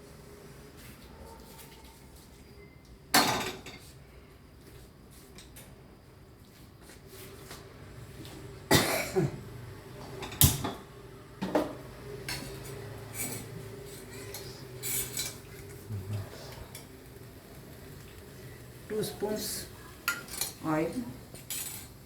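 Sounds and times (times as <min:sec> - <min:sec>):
pots and cutlery clanking: 0:10.2 - 0:10.8, 0:11.4 - 0:17.0, 0:20.0 - 0:20.6, 0:21.4 - 0:22.0.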